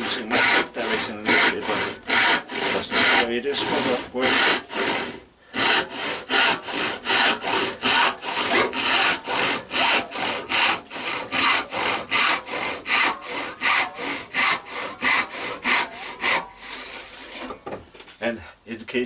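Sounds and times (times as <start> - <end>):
handsaw cutting wood: 0.0 - 17.6.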